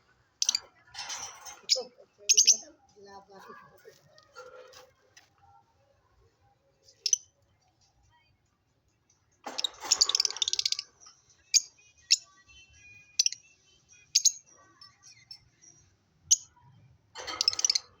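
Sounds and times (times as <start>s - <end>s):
birds shrill chattering: 0.4s - 2.7s, 9.5s - 12.3s, 17.2s - 18.0s
high bird chirps: 9.5s - 10.9s.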